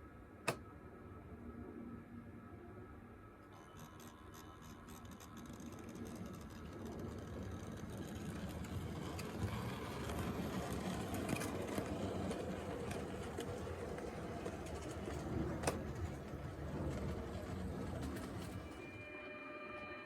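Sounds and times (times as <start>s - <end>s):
model train motor hum: 3.6s - 18.8s.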